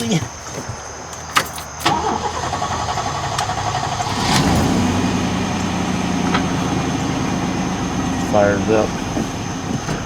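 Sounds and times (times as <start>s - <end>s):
engine idling: 0.0s - 10.0s
starter motor cranking: 1.4s - 10.0s.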